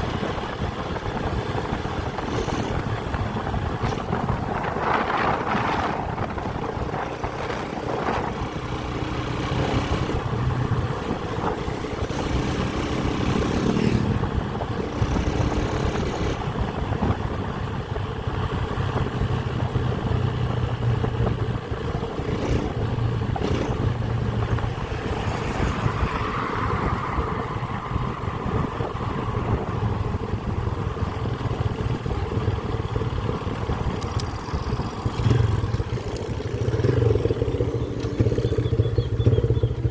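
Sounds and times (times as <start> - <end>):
motorcycle engine running: 0.0 - 26.0, 28.4 - 39.9
road noise rushing: 0.0 - 39.9.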